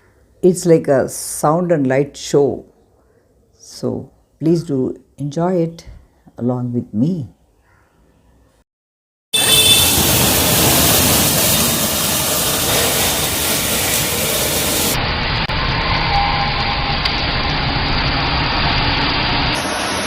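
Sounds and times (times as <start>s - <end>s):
firecrackers hissing: 9.4s - 15.4s, 19.5s - 20.0s.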